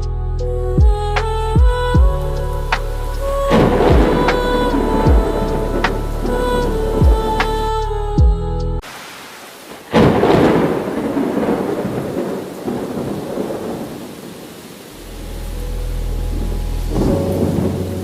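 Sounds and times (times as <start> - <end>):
thunderclap rumbling: 0.8 - 8.0, 9.7 - 18.0
steady rain: 1.6 - 8.1, 8.8 - 18.0.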